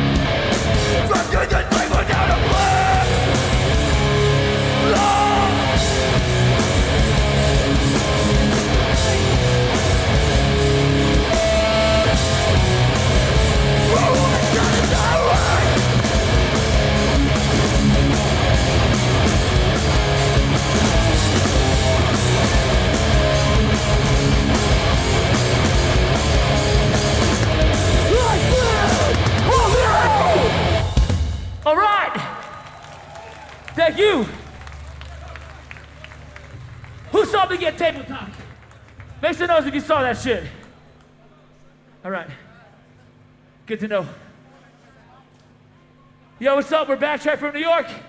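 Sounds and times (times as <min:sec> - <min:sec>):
live hardcore band playing: 0:00.0 - 0:31.6.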